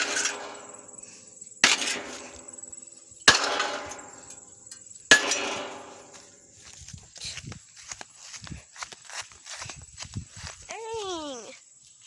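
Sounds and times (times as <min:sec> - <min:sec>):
board banging on metal plate: 0:03.2 - 0:04.4, 0:05.1 - 0:06.4.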